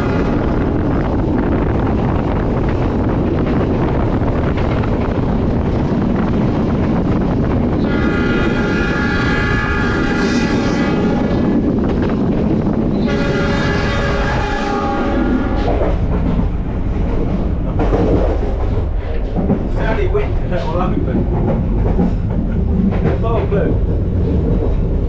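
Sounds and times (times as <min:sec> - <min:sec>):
train running with rumble: 0:00.0 - 0:25.0
train horn blasts: 0:07.8 - 0:11.4, 0:12.9 - 0:15.8.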